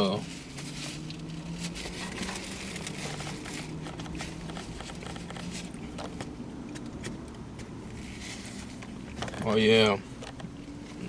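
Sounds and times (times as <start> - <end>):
low steady hum: 0.0 - 11.0
small clicks and rustles: 0.3 - 11.0.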